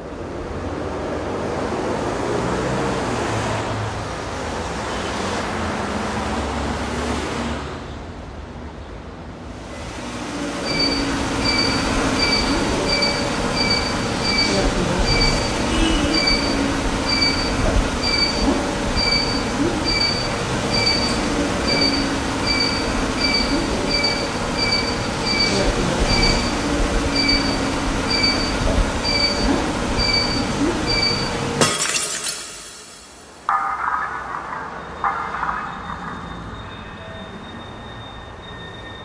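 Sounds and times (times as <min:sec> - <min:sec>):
train rumbling: 0:09.2 - 0:31.6
electronic beeps: 0:10.6 - 0:39.0.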